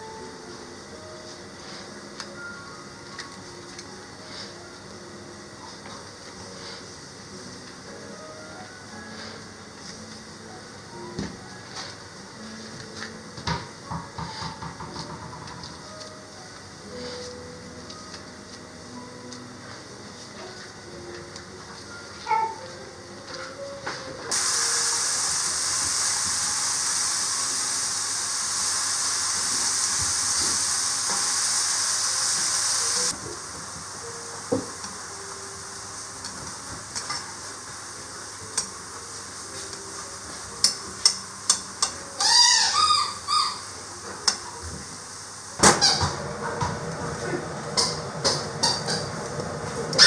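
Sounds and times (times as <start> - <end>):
steady hiss: 24.3 - 48.0.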